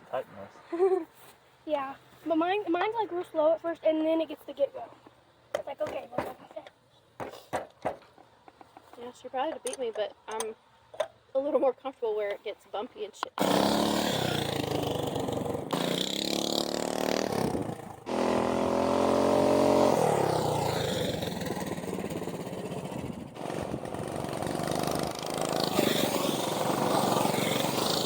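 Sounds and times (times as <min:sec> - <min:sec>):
engine revving up: 0:13.4 - 0:28.0
mini bike engines running: 0:13.4 - 0:28.0.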